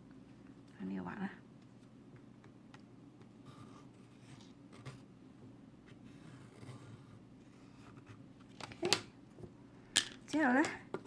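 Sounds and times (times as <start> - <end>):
pencil scratching on paper: 3.4 - 5.0.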